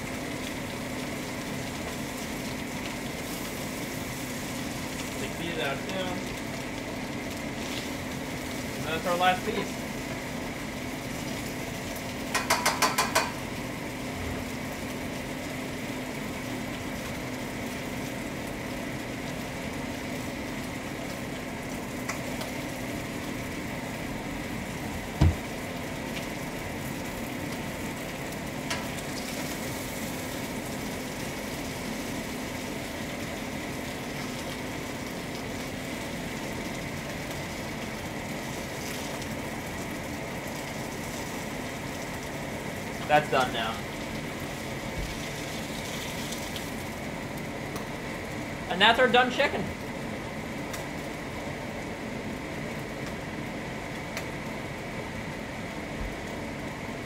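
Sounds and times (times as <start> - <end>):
chicken sizzling in a skillet: 0.0 - 57.0
single knock: 25.2 - 25.4.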